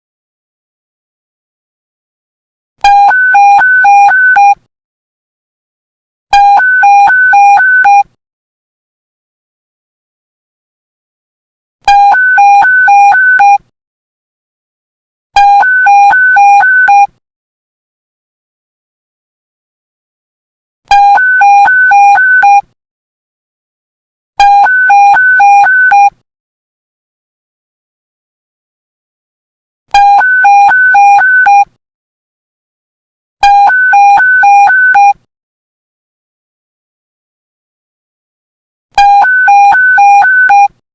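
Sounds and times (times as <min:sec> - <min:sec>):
two-tone electronic alarm beep: 0:02.8 - 0:04.6, 0:06.3 - 0:08.1, 0:11.9 - 0:13.6, 0:15.4 - 0:17.1, 0:20.9 - 0:22.6, 0:24.4 - 0:26.2, 0:29.9 - 0:31.8, 0:33.4 - 0:35.2, 0:39.0 - 0:40.8
two-tone alert beeping: 0:30.0 - 0:31.7, 0:39.0 - 0:40.7.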